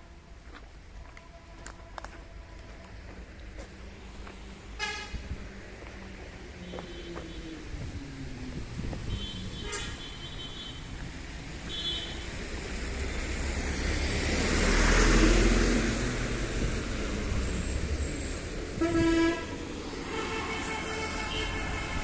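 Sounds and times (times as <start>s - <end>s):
vehicle horns tooting: 4.8s - 5.2s, 9.1s - 10.9s, 11.6s - 12.4s, 18.8s - 22.0s
vehicle passing by: 10.8s - 22.0s.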